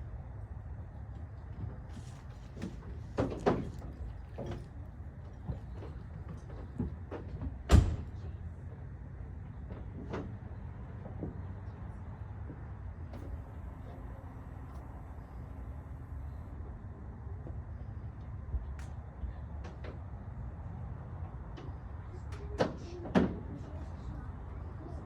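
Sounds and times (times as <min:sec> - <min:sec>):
clunks and knocks: 0:01.6 - 0:08.4
truck door slamming: 0:07.7 - 0:08.2.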